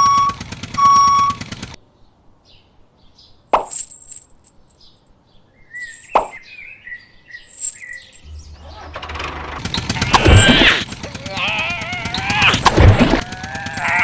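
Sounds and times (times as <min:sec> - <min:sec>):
bird-like chirps: 0:04.6 - 0:08.9.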